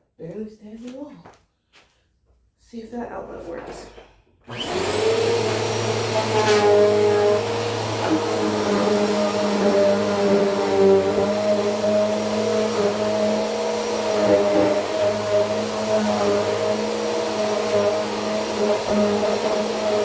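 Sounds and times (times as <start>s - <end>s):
vacuum cleaner running: 4.5s - 20.0s.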